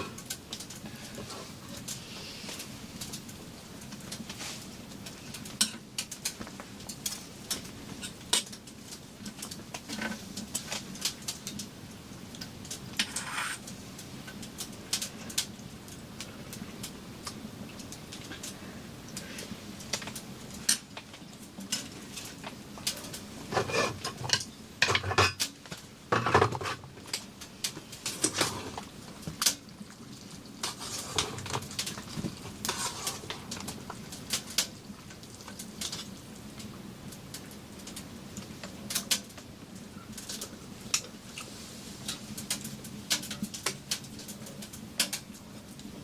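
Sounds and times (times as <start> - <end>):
dishes and utensils clattering: 23.5 - 25.5, 26.1 - 26.8.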